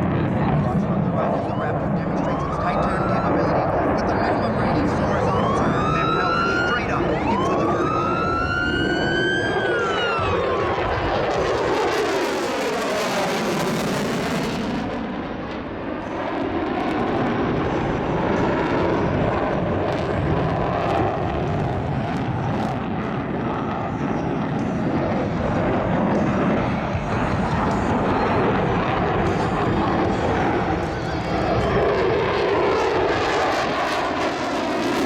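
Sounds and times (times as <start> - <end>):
jet engine roar: 0.0 - 35.0
passing jet whine: 0.0 - 35.0.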